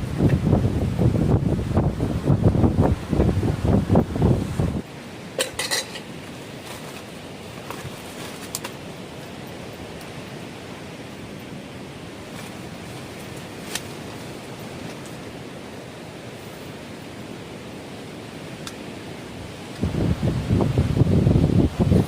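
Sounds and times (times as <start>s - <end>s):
strong wind rushing: 0.0s - 4.9s, 19.5s - 22.0s
sea surf: 0.0s - 22.0s.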